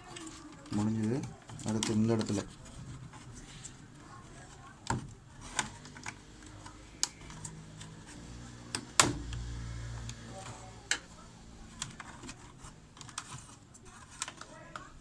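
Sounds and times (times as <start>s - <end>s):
hands clicking on plastic parts: 4.8s - 8.0s, 11.7s - 14.9s.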